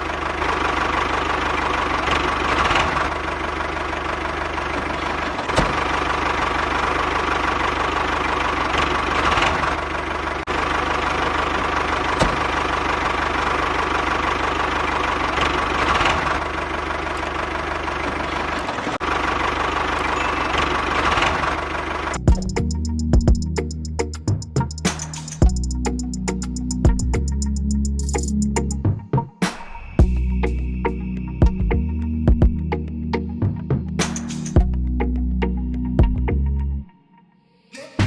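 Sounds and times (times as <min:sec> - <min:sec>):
tractor engine idling: 0:00.0 - 0:28.8
music: 0:22.2 - 0:38.0.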